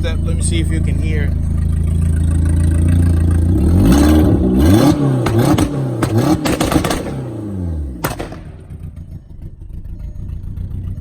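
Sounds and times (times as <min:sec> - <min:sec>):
turbo engine revving on limiter: 0:00.0 - 0:09.2
exhaust pops and cracks: 0:01.3 - 0:09.2.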